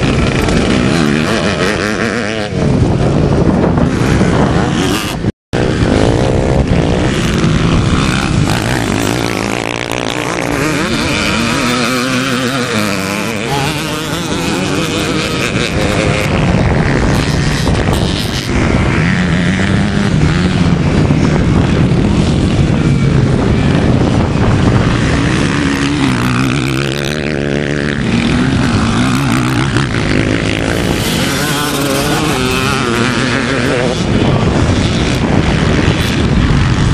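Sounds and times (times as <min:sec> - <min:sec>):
motocross motorcycles revving: 0:00.0 - 0:36.9.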